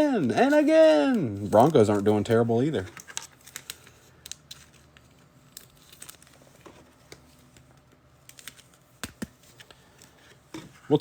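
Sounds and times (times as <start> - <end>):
crinkling of card and wrapper: 0.0 - 11.0.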